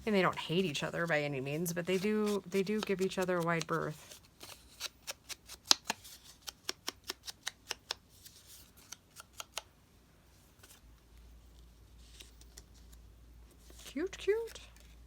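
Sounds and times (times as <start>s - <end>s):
scissors snipping paper: 1.6s - 8.0s.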